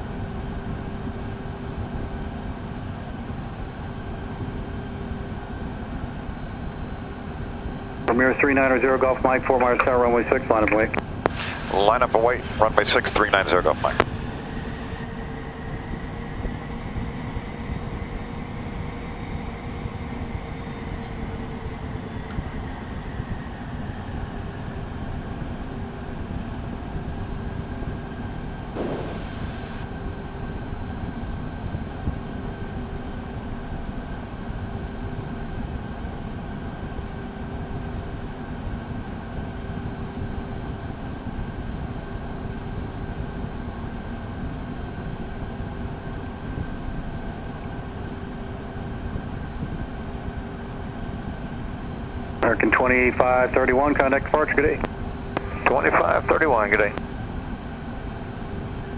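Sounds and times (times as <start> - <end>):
jet engines humming with whine: 0.0 - 58.9
short burst of noise: 28.8 - 29.8.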